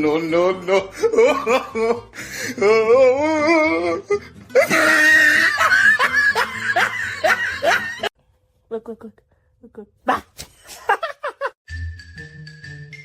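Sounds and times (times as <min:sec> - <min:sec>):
background music: 0:00.0 - 0:08.1, 0:11.7 - 0:13.0
people laughing: 0:04.6 - 0:08.1, 0:10.7 - 0:11.6.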